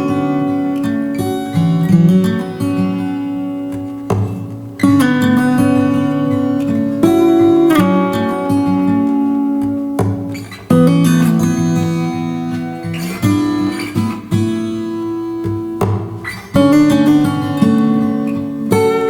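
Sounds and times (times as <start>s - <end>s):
acoustic guitar music: 0.0s - 19.0s.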